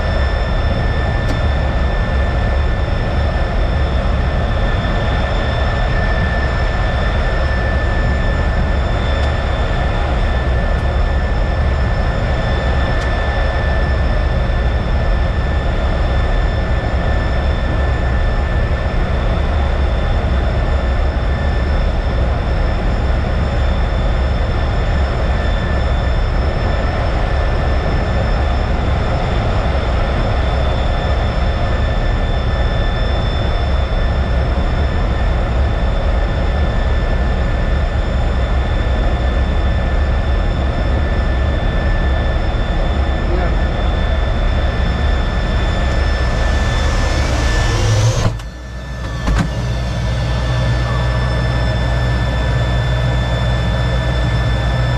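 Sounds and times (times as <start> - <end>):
high-pitched turbine whine: 0.0 - 54.9
jet engine and air rush: 42.0 - 54.9.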